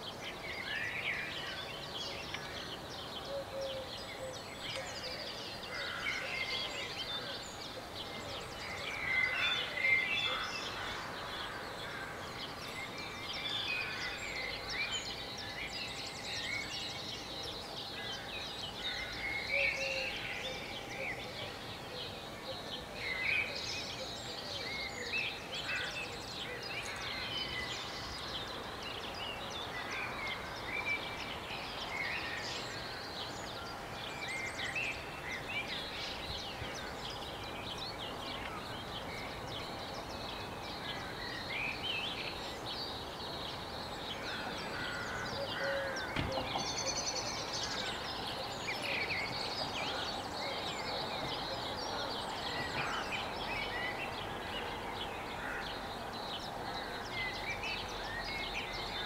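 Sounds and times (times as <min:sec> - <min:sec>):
songbirds singing: 0:00.0 - 0:59.0
town noise: 0:45.9 - 0:57.2.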